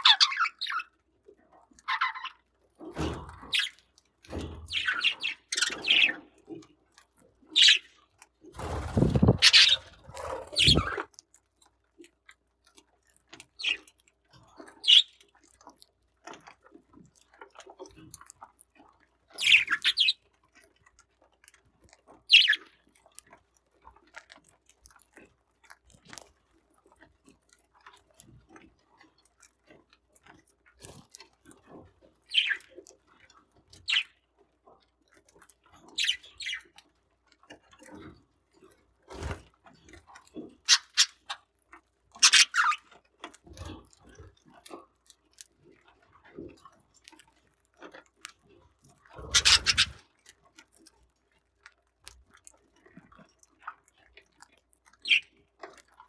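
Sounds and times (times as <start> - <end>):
short high bird chirps: 49.2 - 50.0.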